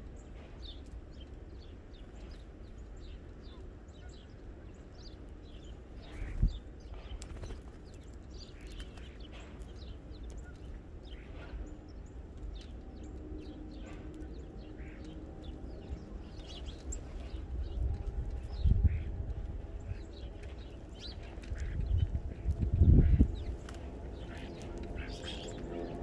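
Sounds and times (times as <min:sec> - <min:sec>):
small birds chirping: 0:00.0 - 0:26.0
steady low rumble: 0:05.2 - 0:26.0.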